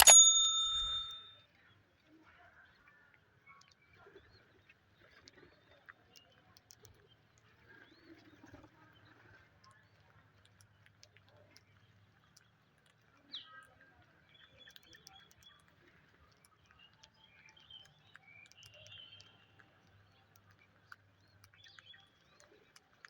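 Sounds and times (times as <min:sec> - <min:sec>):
light clicks: 0:00.0 - 0:01.3.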